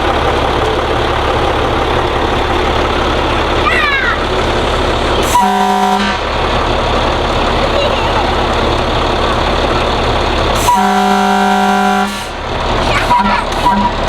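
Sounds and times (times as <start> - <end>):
vehicle engine idling: 0.0 - 14.0
fire truck horn toot: 5.2 - 6.5, 10.5 - 14.0.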